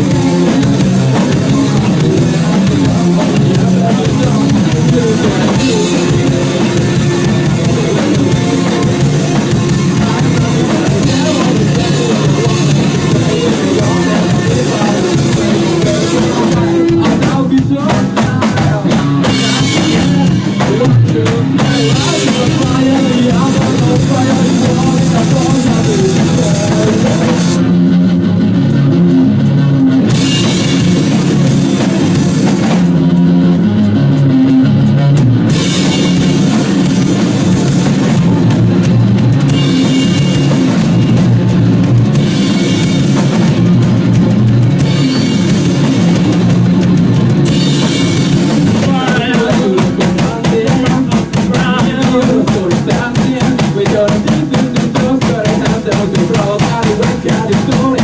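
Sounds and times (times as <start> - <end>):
drum kit: 0.0 - 58.0
electric guitar: 0.0 - 58.0
cymbals: 44.7 - 49.8.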